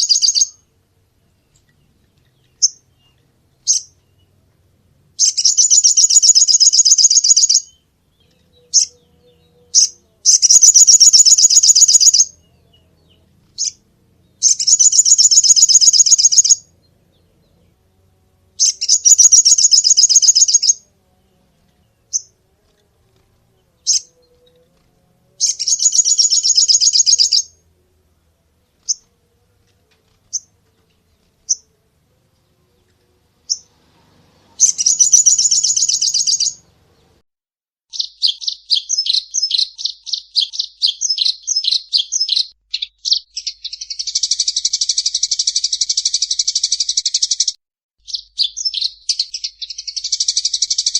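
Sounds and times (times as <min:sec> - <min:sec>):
songbird trilling: 0:00.0 - 0:00.6, 0:05.2 - 0:07.8, 0:08.6 - 0:12.4, 0:14.4 - 0:16.7, 0:18.6 - 0:20.8, 0:25.4 - 0:27.5, 0:34.6 - 0:36.6, 0:37.9 - 0:47.5, 0:48.1 - 0:50.9.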